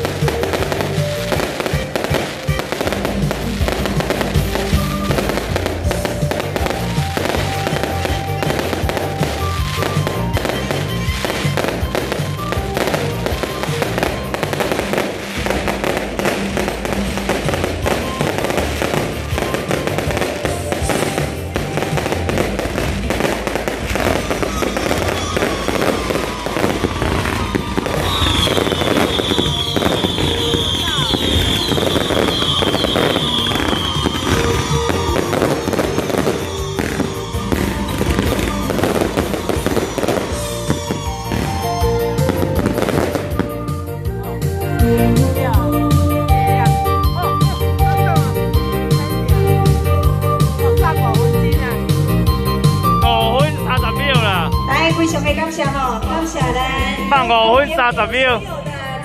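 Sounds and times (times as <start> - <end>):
whistling fireworks shriek: 0.0 - 44.8
fireworks bangs and crackles: 0.0 - 59.0
music playing: 0.0 - 59.0.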